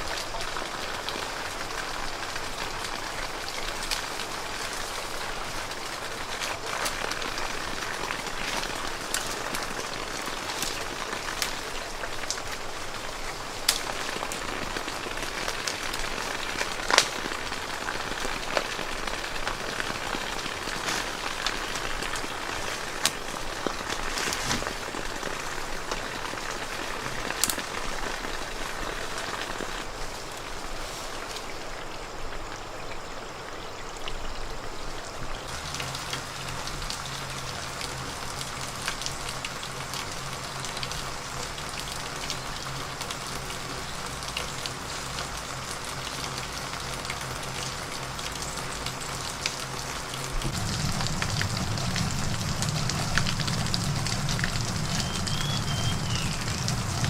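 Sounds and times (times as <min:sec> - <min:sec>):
water pattering on a surface: 0:00.0 - 0:57.0.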